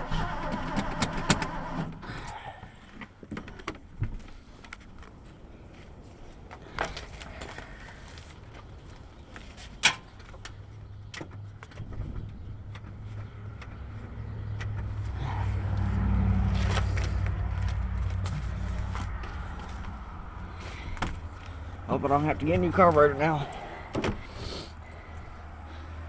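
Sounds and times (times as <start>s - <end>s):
engine cranking by starter: 0.0s - 2.4s.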